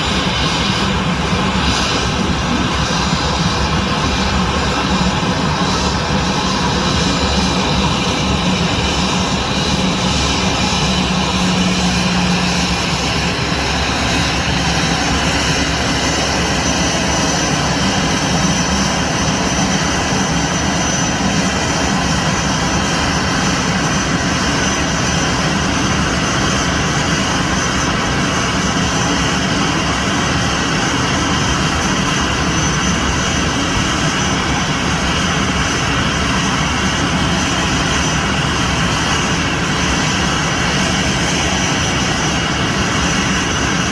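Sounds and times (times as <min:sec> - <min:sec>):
jet engines running: 0:00.0 - 0:43.9.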